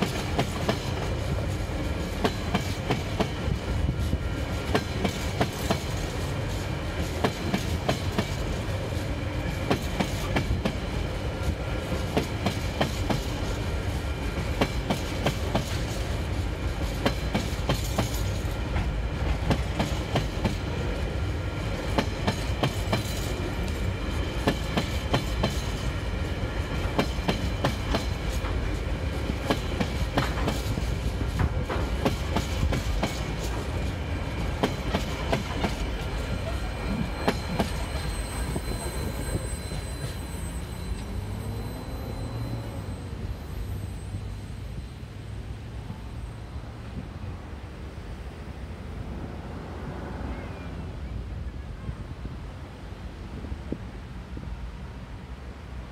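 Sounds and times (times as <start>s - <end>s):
train wheels clicking over rail joints: 0.0s - 44.6s
low train rumble: 0.0s - 55.9s.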